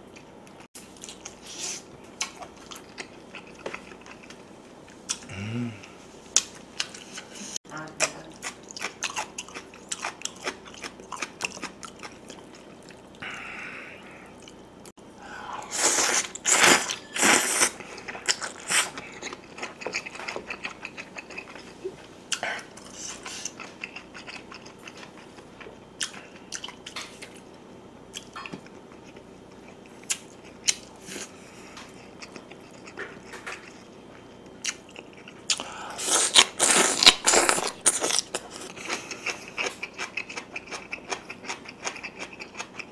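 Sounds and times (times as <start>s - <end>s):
noisy biting and crunching: 31.9s - 42.9s.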